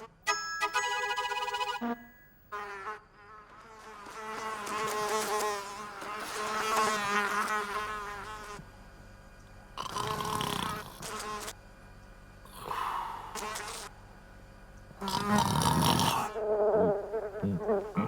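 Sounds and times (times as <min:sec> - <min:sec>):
cartoon insect buzzing: 0:00.8 - 0:08.6, 0:09.8 - 0:11.5, 0:12.6 - 0:13.9, 0:15.0 - 0:18.0.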